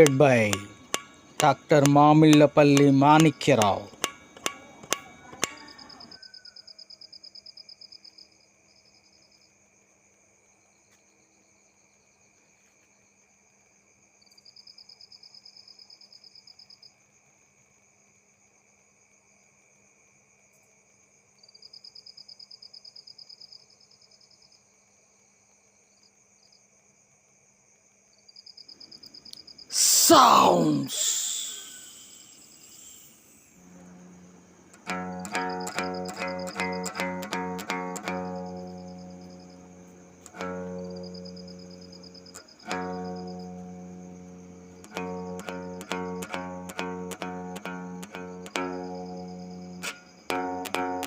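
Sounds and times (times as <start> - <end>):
insect trilling: 0.0 - 7.9, 28.7 - 51.0
faint high-pitched hum: 28.4 - 51.0.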